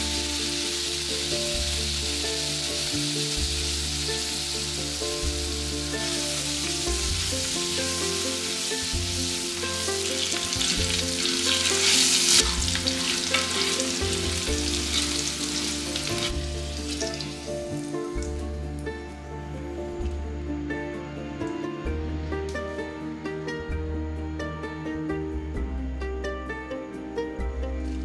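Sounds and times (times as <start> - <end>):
potatoes sizzling in oil: 0.0 - 18.4
spatula stirring in pan: 11.3 - 16.1.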